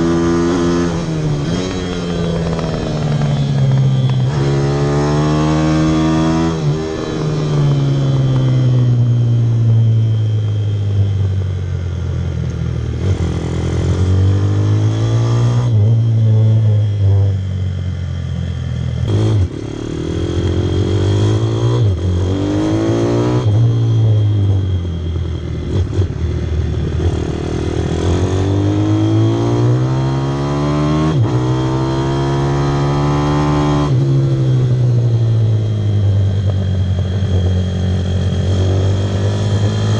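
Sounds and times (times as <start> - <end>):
pit bike engine accelerating: 0.0 - 17.8.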